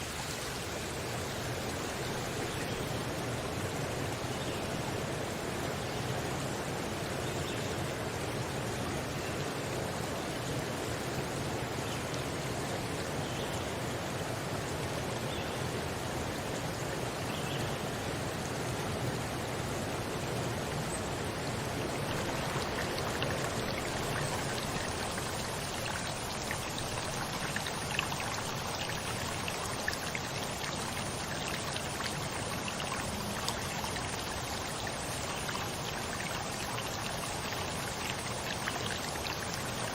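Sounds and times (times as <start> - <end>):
stream water rushing: 0.0 - 39.9
small water splashes: 21.3 - 39.9.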